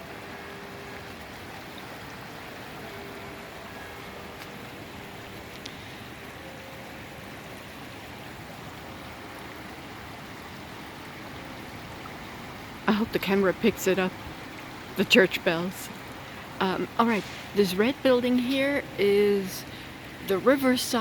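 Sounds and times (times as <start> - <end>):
flowing river water: 0.0 - 21.0.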